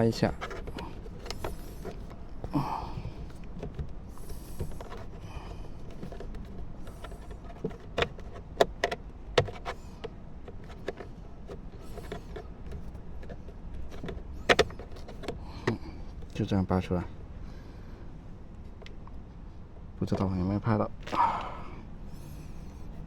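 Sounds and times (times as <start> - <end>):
sharp plastic clicks and knocks: 0.0 - 16.4
rustling handling noise: 0.0 - 16.8.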